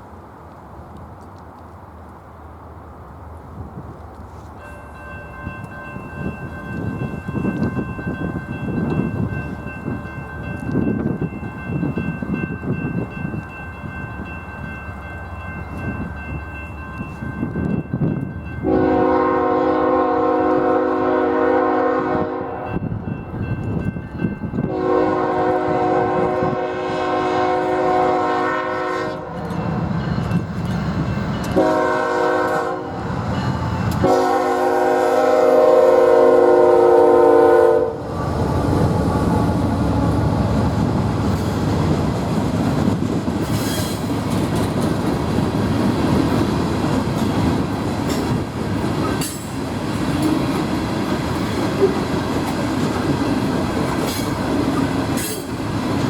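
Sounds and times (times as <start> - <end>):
freight train wheel and rail noise: 0.0 - 56.0
locomotive horn blasts: 18.6 - 22.8, 24.6 - 29.4, 31.5 - 33.0, 34.0 - 38.1.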